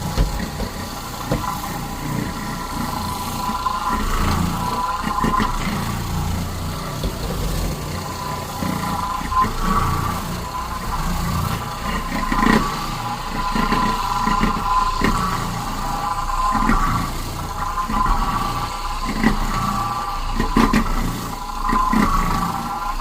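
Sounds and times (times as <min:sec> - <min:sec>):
vacuum cleaner motor whine: 0:00.0 - 0:23.0.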